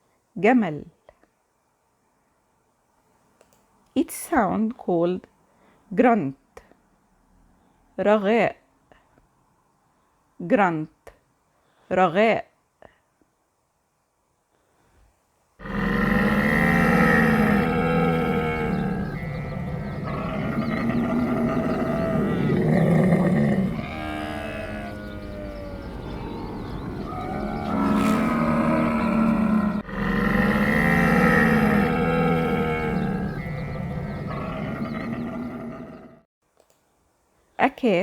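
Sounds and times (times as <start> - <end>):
camel grunting: 15.6 - 36.2.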